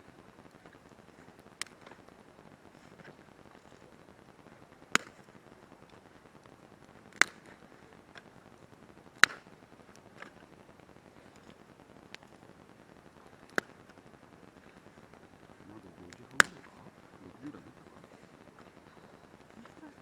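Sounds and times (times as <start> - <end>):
campfire crackling and popping: 0.0 - 20.0
faint steady hiss: 0.0 - 20.0.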